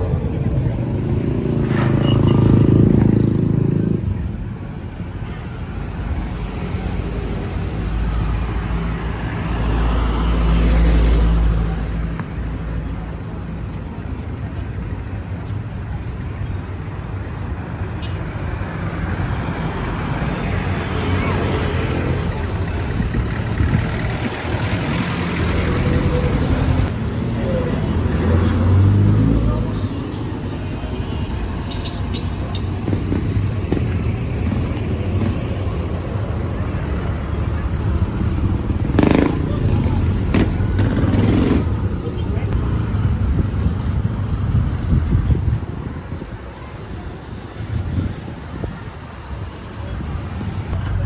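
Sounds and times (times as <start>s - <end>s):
heavy low engine rumble: 0.0s - 5.0s, 22.0s - 28.0s, 29.1s - 51.0s
vehicles passing: 0.0s - 51.0s.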